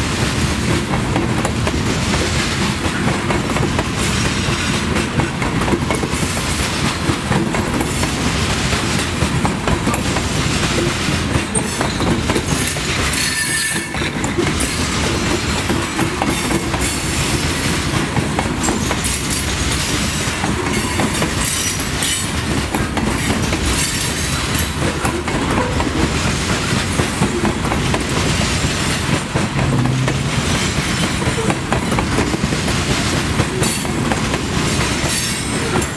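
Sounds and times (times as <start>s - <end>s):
train wheels rumbling on rail: 0.0s - 35.9s
wheel squeal: 11.5s - 14.1s.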